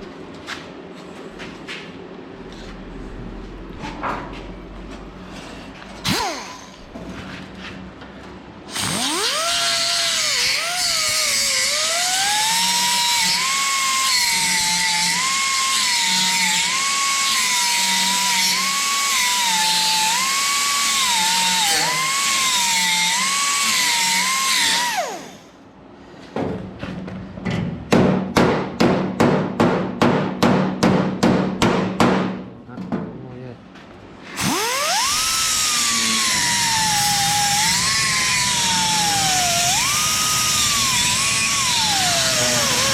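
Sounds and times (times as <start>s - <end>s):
angle grinder grinding steel: 8.7s - 25.3s, 34.4s - 42.9s.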